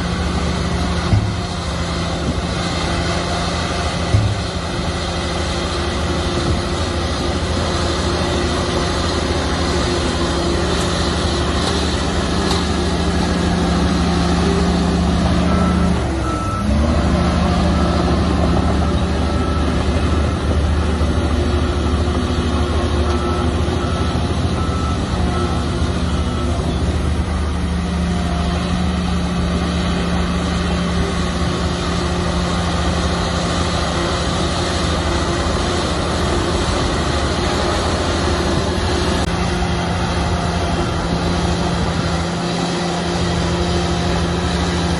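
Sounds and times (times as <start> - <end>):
bulldozer diesel engine running: 0.0 - 44.9
reversing alarm beeping: 8.0 - 42.0.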